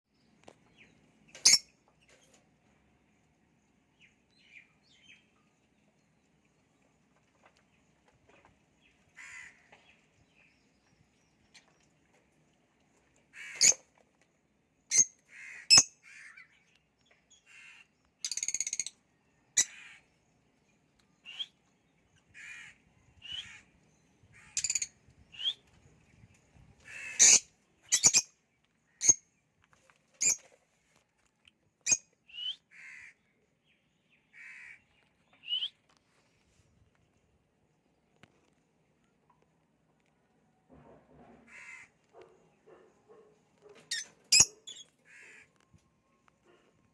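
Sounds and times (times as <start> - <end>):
lovebirds chirping and squawking: 0.7 - 2.4, 13.4 - 14.0, 14.9 - 20.2, 22.2 - 30.7, 31.8 - 33.2, 34.3 - 36.3, 41.5 - 45.7.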